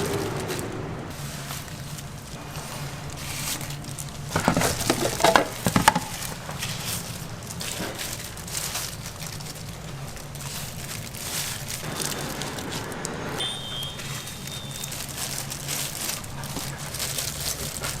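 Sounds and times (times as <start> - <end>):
light crackling and rustling: 0.0 - 13.2, 14.0 - 18.0
clattering knocks: 4.2 - 6.6.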